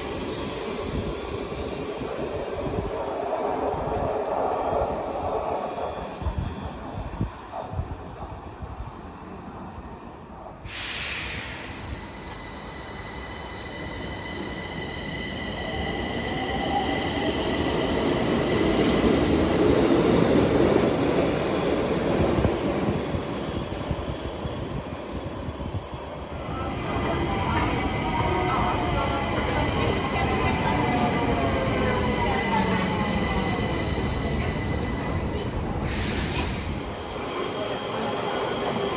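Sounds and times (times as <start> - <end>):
metro train rumbling on track: 0.0 - 38.9
sudden hiss: 10.7 - 12.2, 35.8 - 36.9.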